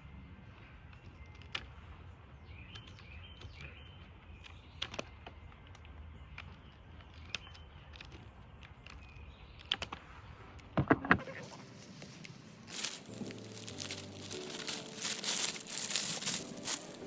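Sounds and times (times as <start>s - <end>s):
birds chirping faintly: 0.0s - 17.0s
sharp clicks: 0.9s - 1.8s, 2.7s - 10.0s.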